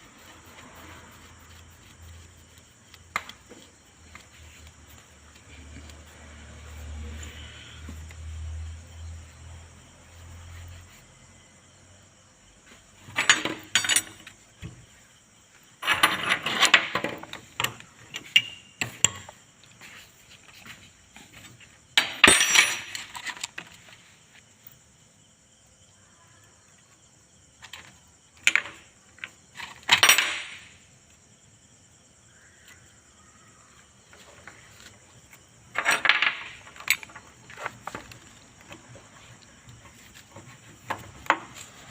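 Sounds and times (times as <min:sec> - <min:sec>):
metal tools clinking: 0:13.1 - 0:14.4, 0:15.8 - 0:19.2, 0:22.0 - 0:23.5, 0:35.7 - 0:38.2.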